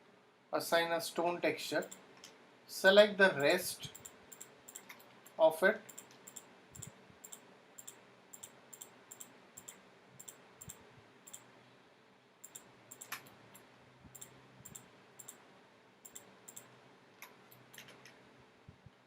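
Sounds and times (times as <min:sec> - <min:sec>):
computer mouse clicks: 0:03.9 - 0:05.1, 0:05.9 - 0:11.5, 0:12.4 - 0:15.4, 0:16.0 - 0:18.2.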